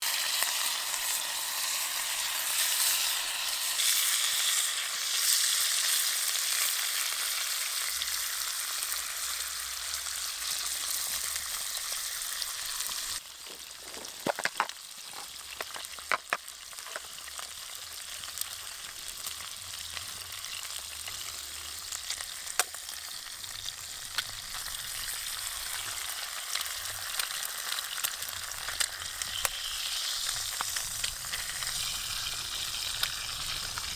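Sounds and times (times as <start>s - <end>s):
food sizzling over campfire: 0.0s - 33.9s
sharp pops and crackles: 13.4s - 17.7s, 21.9s - 33.9s.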